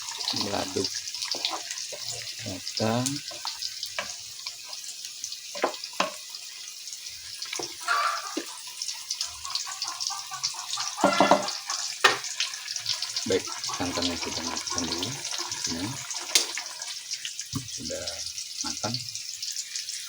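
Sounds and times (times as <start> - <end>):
spatula scraping pan: 0.0 - 2.4, 7.5 - 17.0
food sizzling in hot oil: 0.0 - 20.0.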